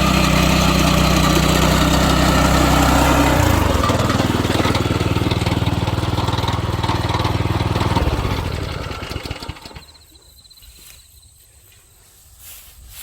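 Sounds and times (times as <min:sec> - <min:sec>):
small petrol engine running: 0:00.0 - 0:10.1.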